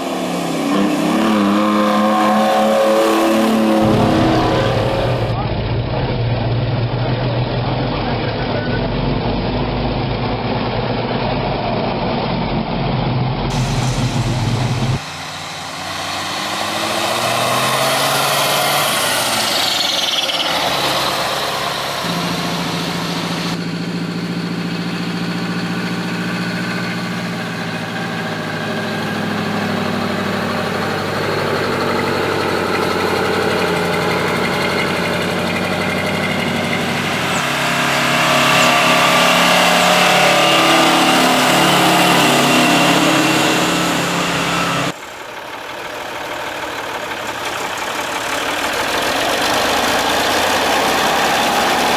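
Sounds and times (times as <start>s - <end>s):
diesel truck engine revving: 0.0s - 51.9s.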